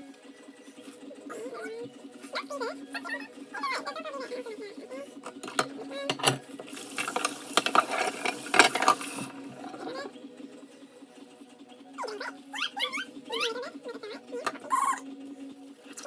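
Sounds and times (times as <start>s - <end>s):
crockery clinking: 5.4s - 9.3s
running water: 5.4s - 10.1s.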